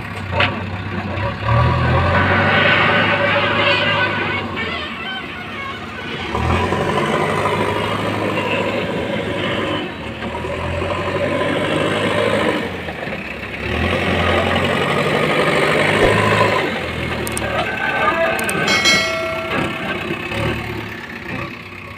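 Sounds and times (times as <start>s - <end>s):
backhoe diesel engine revving: 0.6s - 4.3s, 6.2s - 18.5s.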